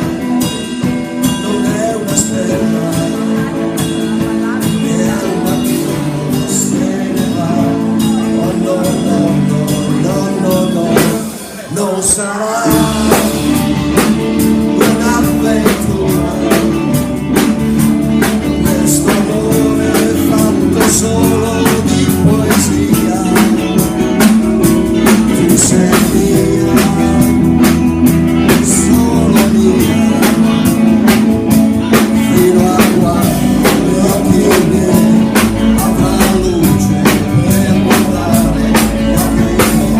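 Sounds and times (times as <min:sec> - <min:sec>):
live band music: 0:00.0 - 0:39.9.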